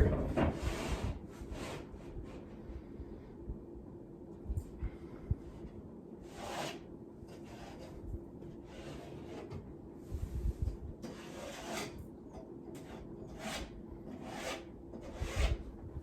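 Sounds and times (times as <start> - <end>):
metal square scraping drywall: 0.0 - 2.5, 6.2 - 9.6, 11.0 - 12.0, 12.8 - 15.7.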